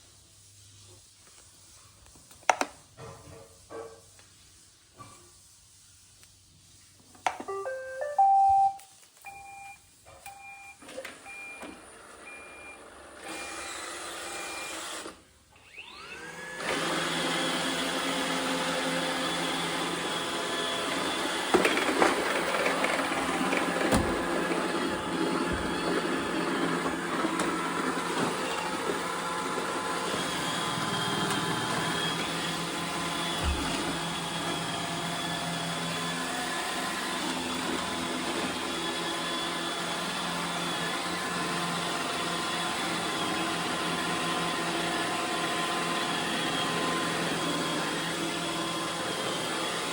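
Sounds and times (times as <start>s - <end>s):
short high beeps: 7.5s - 9.7s
robot vacuum motor whine: 10.8s - 49.9s.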